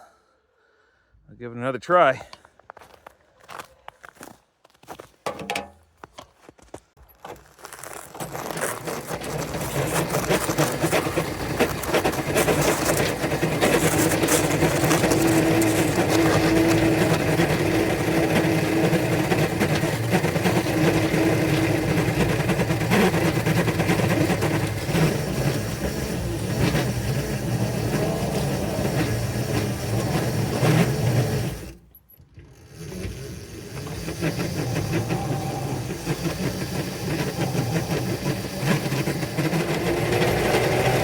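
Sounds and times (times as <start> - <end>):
model locomotive motors whirring: 8.2 - 41.0.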